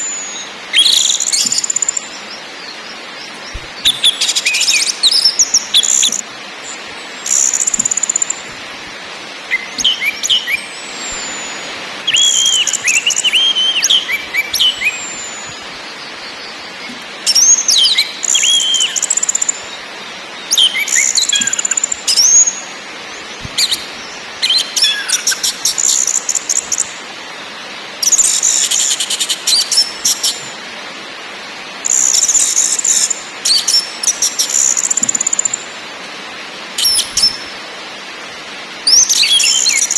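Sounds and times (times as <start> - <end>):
bird chattering and whistling: 0.0 - 2.1, 7.3 - 8.6, 9.5 - 15.6
steady hiss: 0.0 - 39.9.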